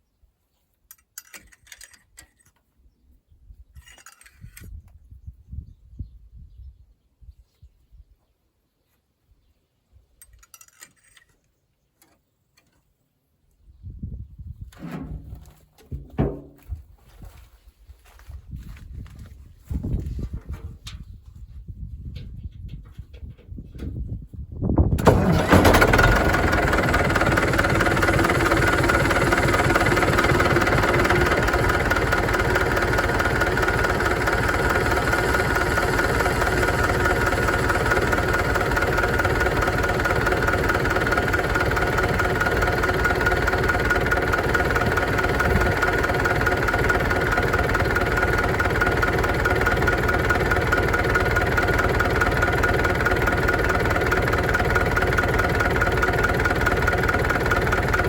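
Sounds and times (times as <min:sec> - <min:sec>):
tractor diesel engine idling: 0:25.0 - 0:58.0.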